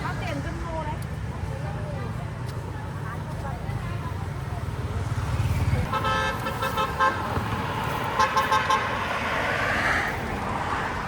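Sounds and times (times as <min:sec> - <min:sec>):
road traffic noise: 0:00.0 - 0:11.0
vehicle horn beeping: 0:05.9 - 0:07.3, 0:08.1 - 0:09.0.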